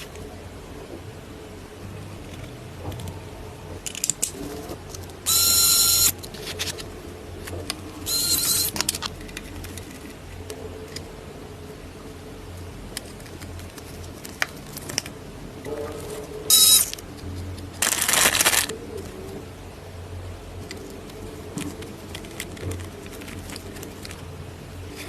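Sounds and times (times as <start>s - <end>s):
small parts clicking and rattling: 3.8s - 10.2s, 16.5s - 18.8s
small electric motor whirring: 5.3s - 6.2s, 8.0s - 8.8s, 16.5s - 16.9s.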